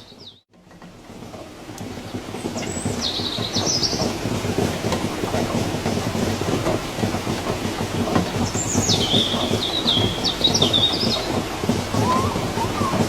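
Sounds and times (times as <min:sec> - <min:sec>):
rain pattering: 0:00.8 - 0:13.0
bird calling: 0:11.9 - 0:13.0.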